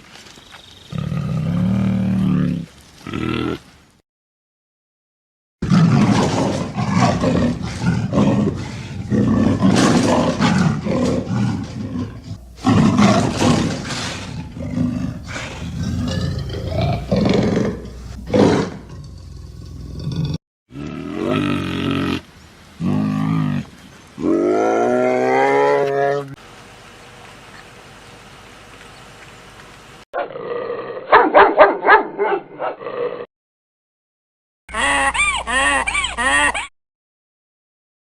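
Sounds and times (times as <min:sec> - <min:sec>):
lion roaring and growling: 0:05.6 - 0:22.2, 0:22.8 - 0:26.4, 0:30.2 - 0:31.2.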